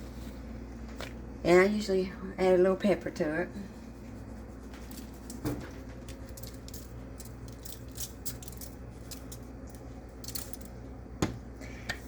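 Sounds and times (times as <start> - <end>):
pepper shaker rattling: 4.8 - 10.8.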